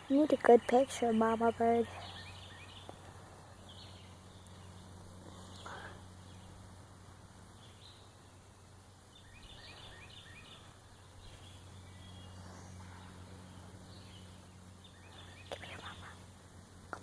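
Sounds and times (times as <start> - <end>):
steady low hum: 0.0 - 17.0
small bird chirps: 0.2 - 6.6, 7.5 - 16.2.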